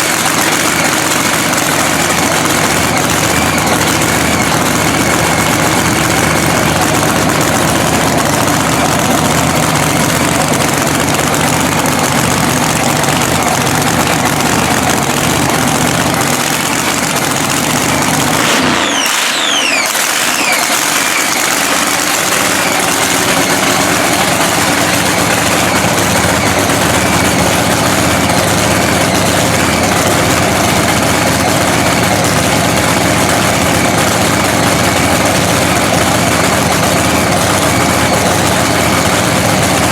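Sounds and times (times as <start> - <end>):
drag-racing engine idling: 0.0 - 39.9
high whistling tones falling: 18.7 - 21.7.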